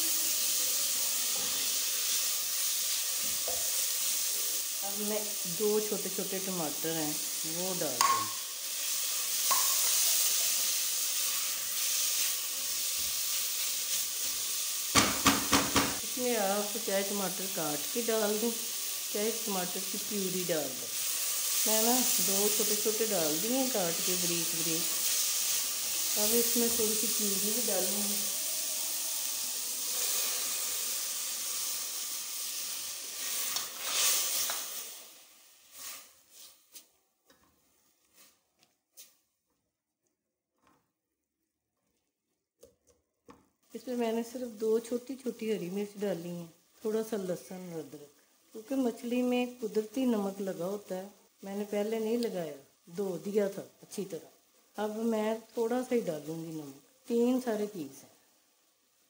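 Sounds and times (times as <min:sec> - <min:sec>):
onions sizzling in a pot: 0:00.0 - 0:39.2, 0:43.6 - 0:59.0
spatula knocking on pot: 0:08.0 - 0:08.4, 0:15.0 - 0:16.0.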